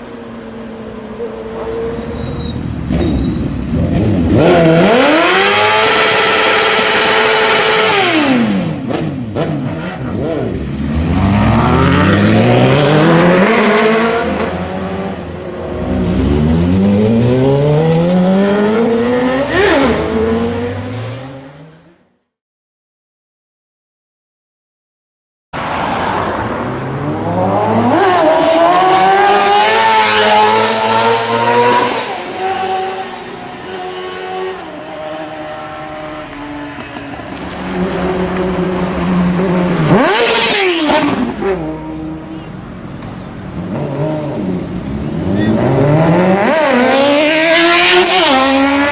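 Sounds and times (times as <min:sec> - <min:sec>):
motorcycle engine revving: 0:02.5 - 0:21.7, 0:37.6 - 0:42.4, 0:43.6 - 0:48.9.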